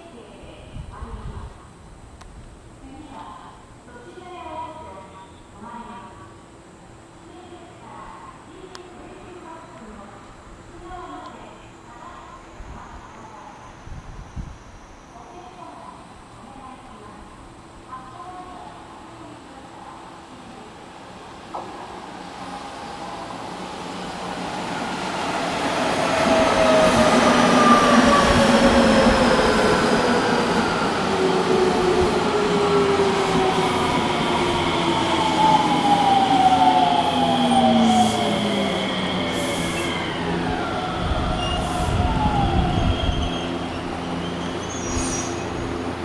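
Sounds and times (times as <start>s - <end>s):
wheels rumbling on rail: 23.4s - 46.0s.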